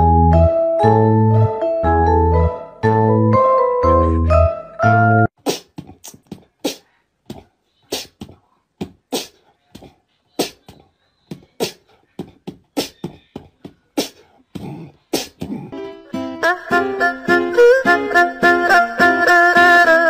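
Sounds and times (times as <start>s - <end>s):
beatbox percussion beat: 5.4s - 15.8s.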